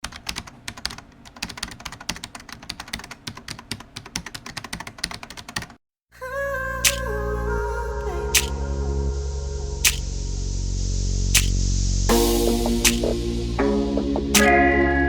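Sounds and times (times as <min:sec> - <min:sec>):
keyboard typing clicks: 0:00.0 - 0:05.8, 0:14.4 - 0:14.6
music: 0:06.9 - 0:15.0.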